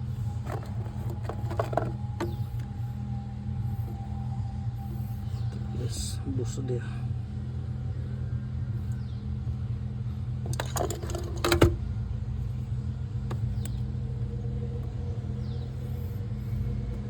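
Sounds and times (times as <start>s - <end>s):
steady low hum: 0.0s - 17.0s
metal clicks and clanks: 0.3s - 2.7s, 10.4s - 11.8s.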